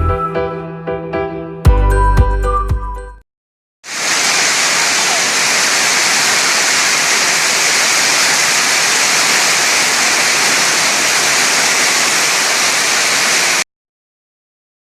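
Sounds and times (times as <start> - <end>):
heavy rain falling: 3.9 - 13.6.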